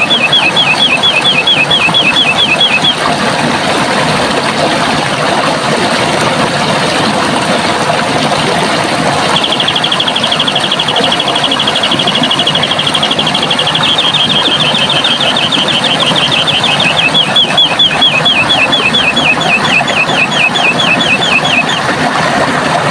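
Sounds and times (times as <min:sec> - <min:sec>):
bird trilling: 0:00.0 - 0:03.0, 0:09.4 - 0:21.9
running water: 0:00.0 - 0:22.9.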